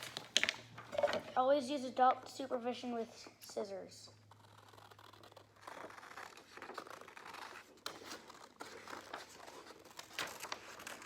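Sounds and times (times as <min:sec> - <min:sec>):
scissors cutting paper: 0:04.2 - 0:11.0
paper rustling: 0:04.4 - 0:11.0.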